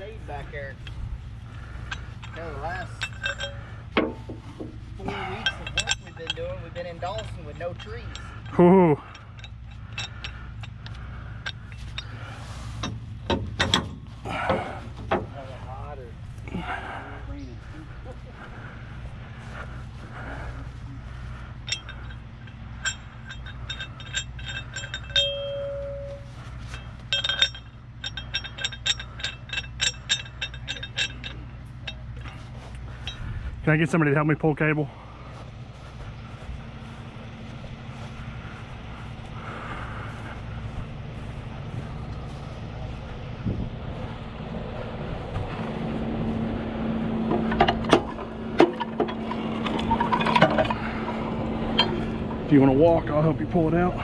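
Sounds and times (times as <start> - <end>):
metallic clanks of winch cable: 0.0 - 17.4, 18.1 - 43.6, 44.8 - 54.0
chain and shackles clinking: 0.0 - 54.0
low engine hum: 0.0 - 54.0
short steady tone: 25.2 - 26.3.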